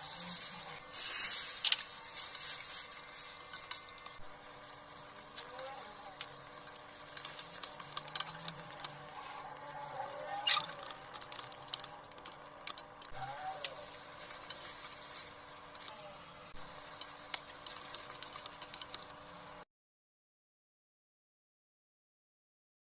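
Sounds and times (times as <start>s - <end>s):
utensil scraping against pan: 0.0s - 4.2s
meat sizzling in a pan: 0.0s - 11.5s, 13.1s - 19.6s.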